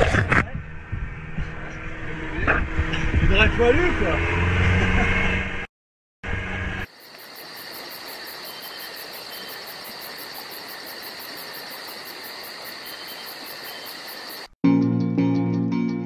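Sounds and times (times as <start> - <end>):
crickets chirping: 6.8 - 14.6.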